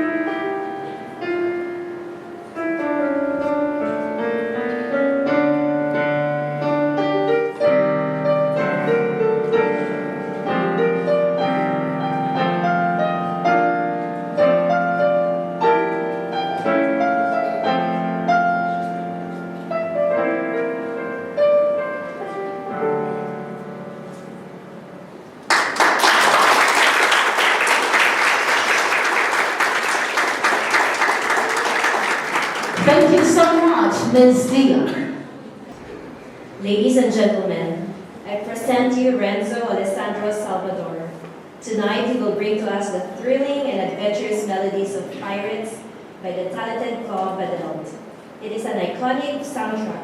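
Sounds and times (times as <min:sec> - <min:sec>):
solo piano waltz: 0:00.0 - 0:25.3
audience applause: 0:25.5 - 0:33.7.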